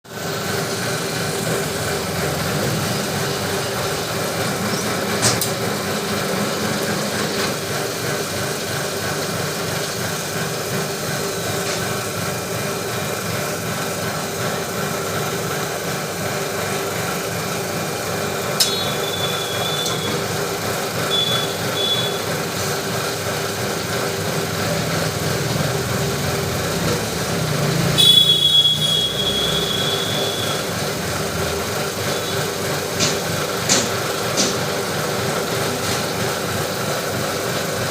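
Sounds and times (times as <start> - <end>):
lathe humming: 0.2 - 28.1
short high-pitched squeals: 18.6 - 20.4, 21.1 - 22.3, 27.9 - 30.9.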